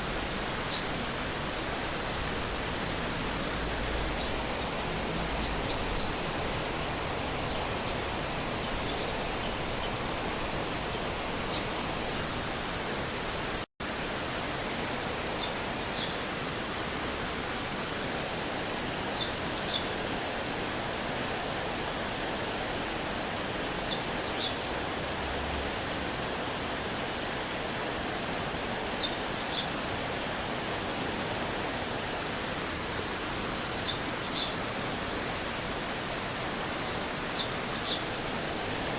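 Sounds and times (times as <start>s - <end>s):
stream water rushing: 0.0s - 38.9s
bird chirping: 5.4s - 6.1s, 37.4s - 38.1s.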